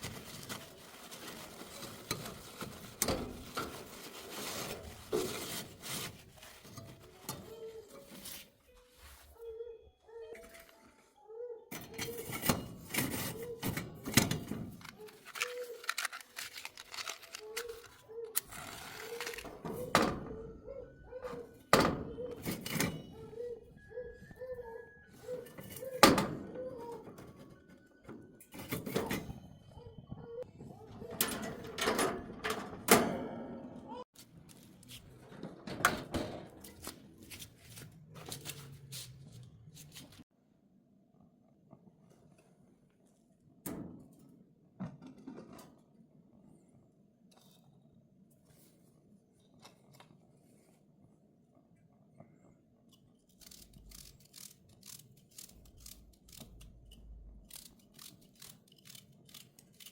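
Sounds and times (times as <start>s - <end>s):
clicks and knocks of handling: 11.7s - 19.9s
faint cooing: 23.2s - 25.9s.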